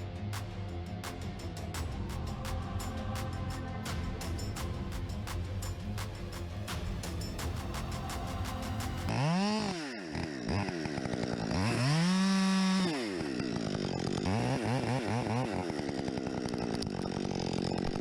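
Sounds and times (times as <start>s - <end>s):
chainsaw engine revving: 9.1s - 18.0s.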